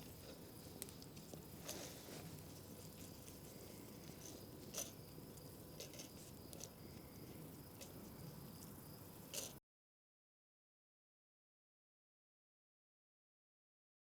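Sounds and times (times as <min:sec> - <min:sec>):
campfire crackling: 0:00.0 - 0:09.6.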